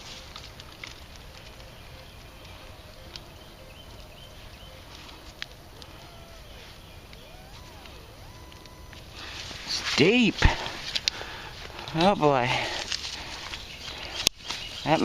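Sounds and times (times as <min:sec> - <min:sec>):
metal detector signal tones: 0:01.2 - 0:09.3.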